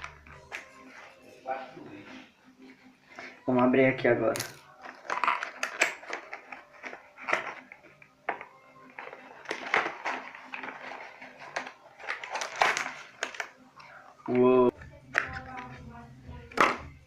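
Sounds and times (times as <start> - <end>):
packaging rustling and crinkling: 4.7 - 13.5.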